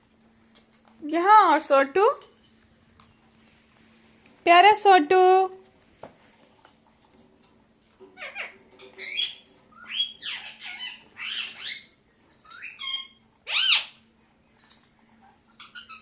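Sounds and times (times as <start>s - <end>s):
parakeet squawking and chattering: 8.0s - 14.0s, 15.4s - 16.0s.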